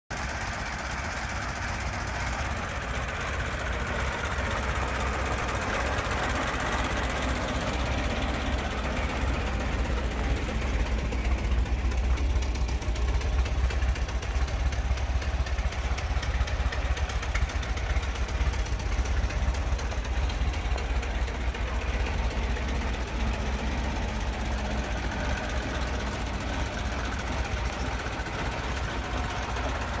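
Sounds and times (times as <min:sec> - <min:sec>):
truck engine idling: 0:00.1 - 0:30.0.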